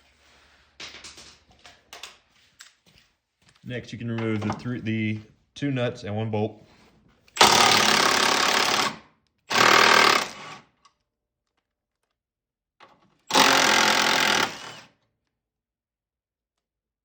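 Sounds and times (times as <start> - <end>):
impact wrench hammering: 7.4 - 10.4.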